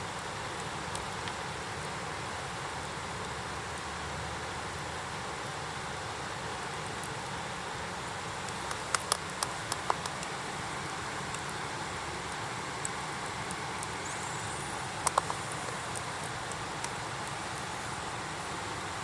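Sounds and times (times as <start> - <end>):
background hiss: 0.0 - 19.0
wood fire crackling: 0.0 - 19.0.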